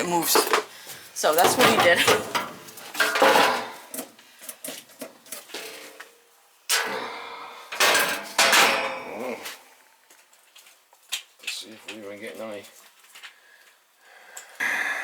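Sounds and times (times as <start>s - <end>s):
sheet metal clanking and rattling: 1.3s - 4.0s, 7.8s - 9.1s.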